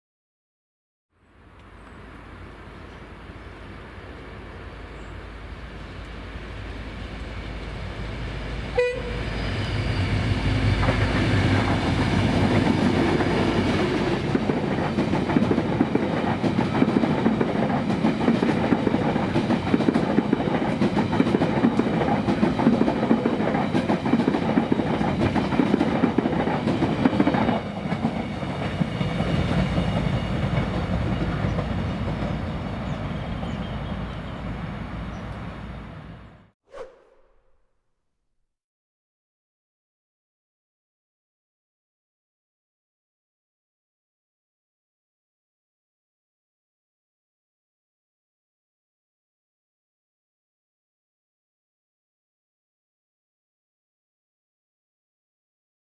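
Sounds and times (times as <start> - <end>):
train horn toot: 8.7 - 10.5.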